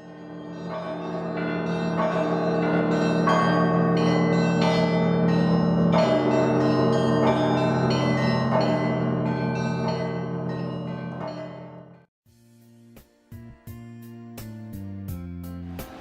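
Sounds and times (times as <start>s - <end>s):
church bells ringing: 0.0s - 12.1s.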